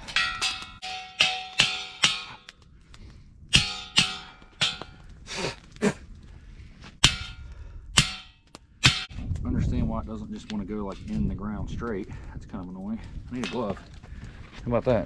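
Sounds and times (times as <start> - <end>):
metal post clanging: 0.0 - 2.6, 3.5 - 5.1, 7.0 - 9.2.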